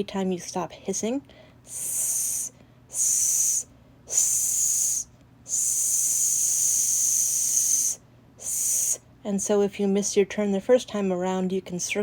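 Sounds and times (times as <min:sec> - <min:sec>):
person hissing into a microphone: 0:01.7 - 0:09.0.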